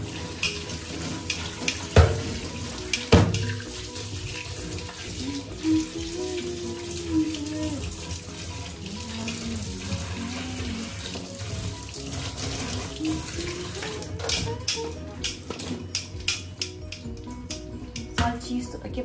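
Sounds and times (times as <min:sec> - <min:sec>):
hands stirring in water: 0:00.0 - 0:18.2
tap running into a steel pot: 0:00.4 - 0:03.6.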